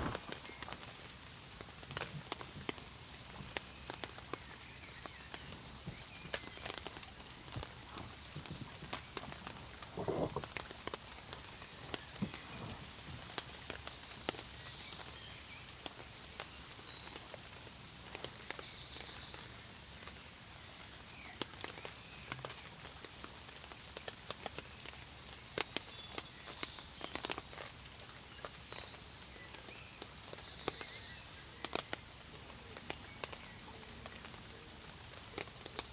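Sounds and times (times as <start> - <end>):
steady rain: 0.0 - 35.9.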